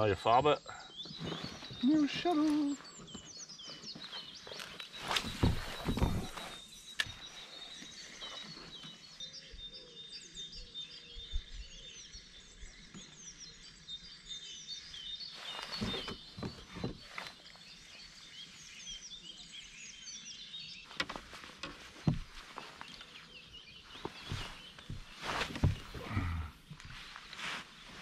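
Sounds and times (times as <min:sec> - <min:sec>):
songbirds singing: 0:00.0 - 0:28.0
dull knocks: 0:05.1 - 0:06.5, 0:21.0 - 0:22.5, 0:24.0 - 0:26.8.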